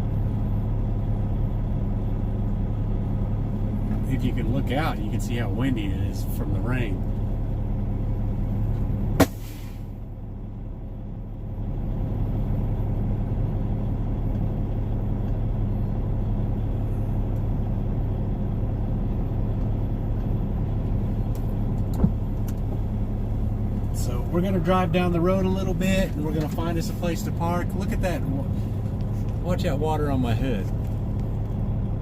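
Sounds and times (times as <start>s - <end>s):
diesel truck engine running: 0.0s - 32.0s
air brake hiss: 9.2s - 10.0s.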